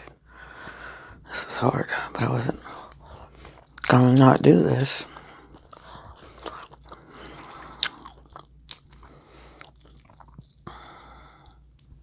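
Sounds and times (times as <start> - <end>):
crunching and chewing: 2.6 - 4.1, 5.0 - 12.0.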